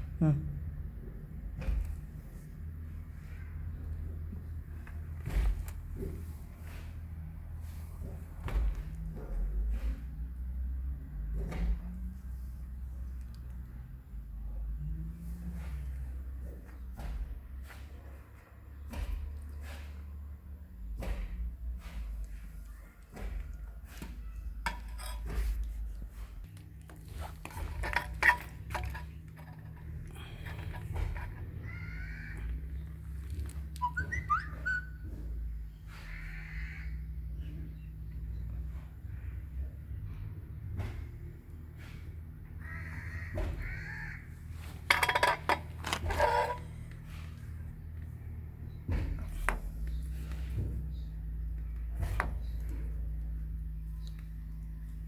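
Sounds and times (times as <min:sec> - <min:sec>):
low steady hum: 0:20.2 - 0:55.0
hard objects clinking: 0:27.0 - 0:31.5, 0:44.8 - 0:46.7
harsh animal calls: 0:31.4 - 0:32.8, 0:33.7 - 0:35.2, 0:35.9 - 0:37.2, 0:42.6 - 0:44.5.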